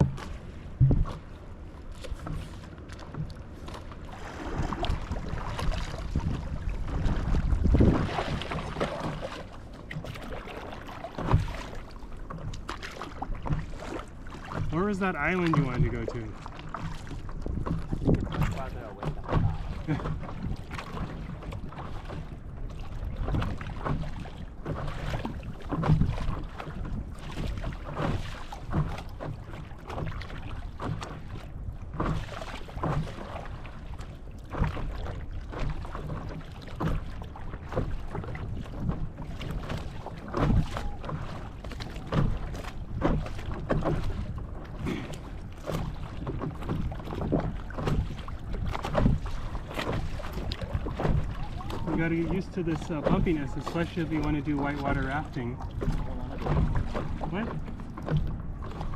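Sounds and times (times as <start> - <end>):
wind rumbling on microphone: 0.0 - 1.4, 4.1 - 34.0, 34.6 - 58.9
paddle strokes splashing: 0.0 - 58.9
water slapping against a board: 0.0 - 58.9.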